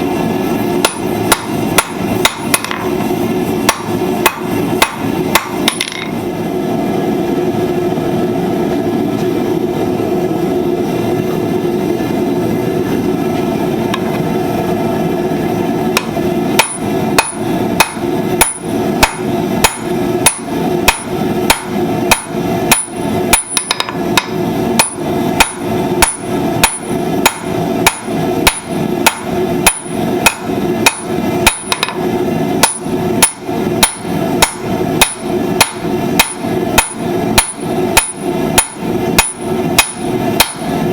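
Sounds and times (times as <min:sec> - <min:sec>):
steady hum: 0:00.0 - 0:40.9
hammer ringing on anvil: 0:16.0 - 0:32.0, 0:32.6 - 0:40.8.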